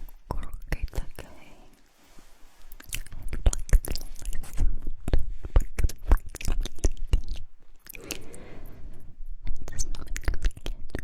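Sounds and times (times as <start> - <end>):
wet lip and tongue clicks: 2.7 - 8.0, 9.6 - 11.0.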